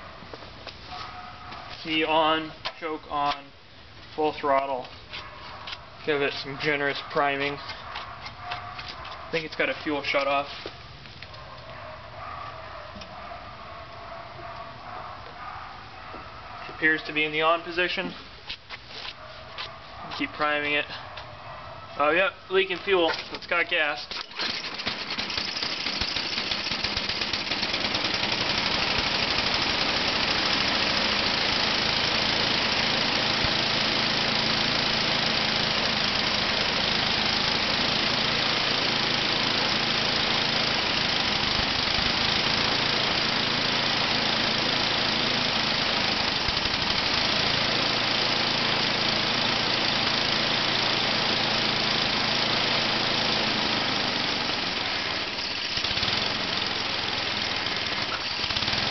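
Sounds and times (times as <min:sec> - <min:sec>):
snowblower engine running: 0:22.7 - 0:58.9.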